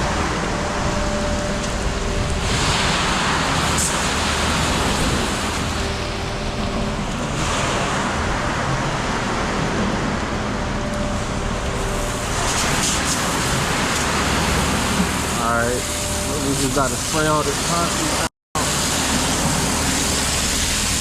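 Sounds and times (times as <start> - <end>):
water hose spraying: 0.0 - 8.2, 11.7 - 21.0
diesel engine droning: 0.0 - 21.0.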